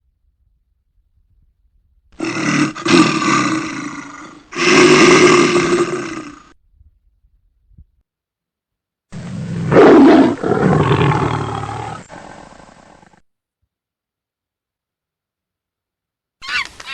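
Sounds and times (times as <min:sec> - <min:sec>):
large animal roaring: 0:02.2 - 0:06.5, 0:09.2 - 0:13.2.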